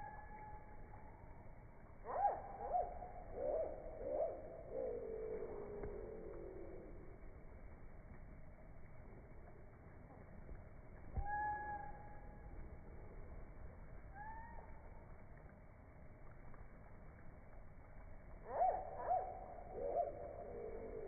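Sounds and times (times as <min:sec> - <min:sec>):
slowed hummingbird chirps: 0:00.0 - 0:09.7, 0:10.8 - 0:15.6.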